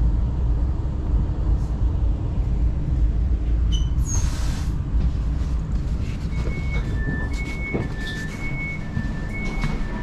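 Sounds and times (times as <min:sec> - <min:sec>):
train low rumble: 0:00.0 - 0:10.0
two-tone door beep: 0:06.3 - 0:10.0.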